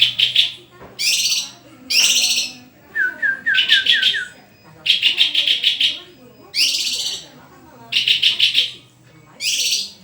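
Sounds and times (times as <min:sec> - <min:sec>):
songbird singing high notes: 0:00.0 - 0:06.0
lower down-slurred bird whistles: 0:03.0 - 0:04.4.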